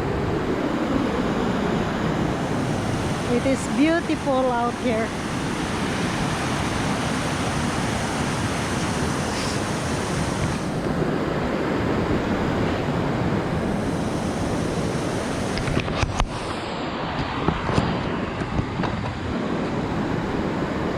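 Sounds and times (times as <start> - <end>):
water rushing over rocks: 0.0 - 17.8.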